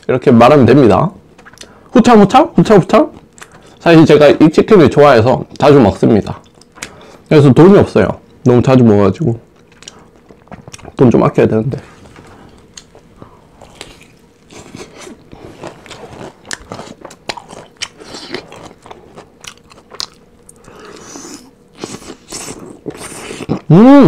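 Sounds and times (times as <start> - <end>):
crispy chicken crunching: 13.7 - 20.6.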